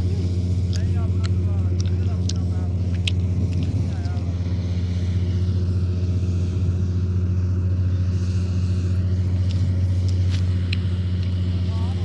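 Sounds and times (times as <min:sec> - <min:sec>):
combine harvester engine drone: 0:00.0 - 0:12.0.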